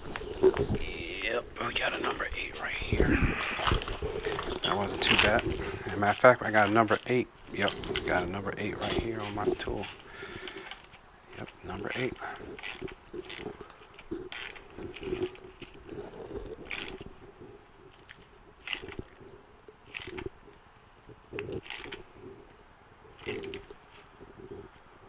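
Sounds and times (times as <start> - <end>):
hand ratchet clicking: 11.9 - 13.5, 14.3 - 15.4, 16.7 - 17.0, 18.6 - 19.0, 19.9 - 20.3, 21.6 - 22.0, 23.2 - 23.7.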